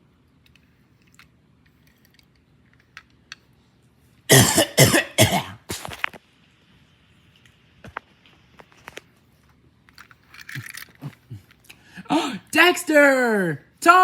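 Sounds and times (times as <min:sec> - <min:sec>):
person coughing: 0:04.3 - 0:06.0.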